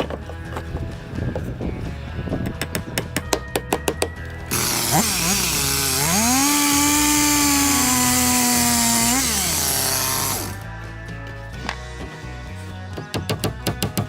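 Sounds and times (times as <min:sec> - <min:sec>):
chainsaw cutting wood: 0:04.5 - 0:10.7.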